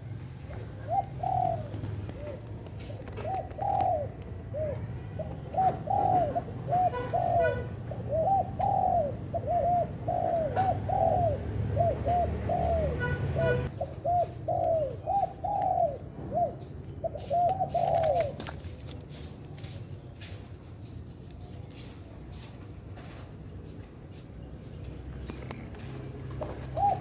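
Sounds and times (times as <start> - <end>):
dove cooing: 0.2 - 19.0, 25.3 - 27.0.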